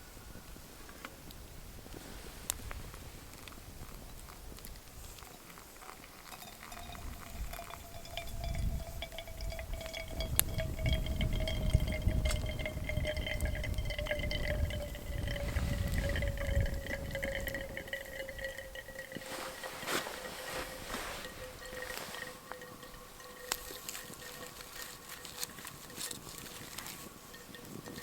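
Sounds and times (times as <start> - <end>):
ringing tone of filling vessel: 5.3 - 28.0
water pouring and splashing: 5.8 - 27.1.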